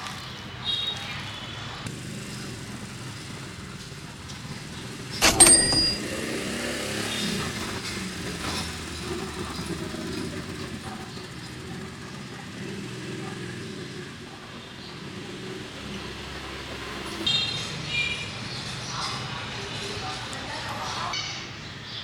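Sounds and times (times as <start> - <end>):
motorbike traffic: 0.0 - 22.0
sharp metallic clank: 5.2 - 6.3.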